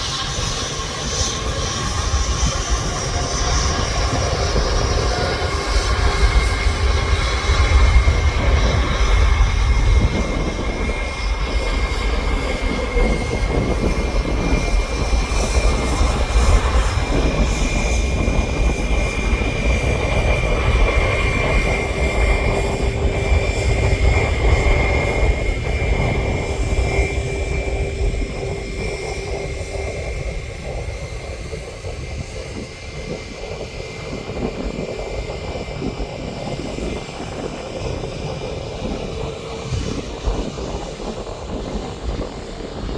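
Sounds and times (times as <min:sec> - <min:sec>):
jet engine high whine: 0:00.0 - 0:42.9
jet engines low rumble: 0:00.0 - 0:42.9.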